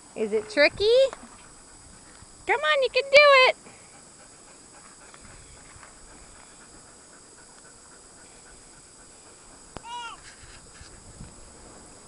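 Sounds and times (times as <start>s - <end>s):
faint outdoor hiss: 0.0s - 12.0s
small rustles: 3.6s - 12.0s.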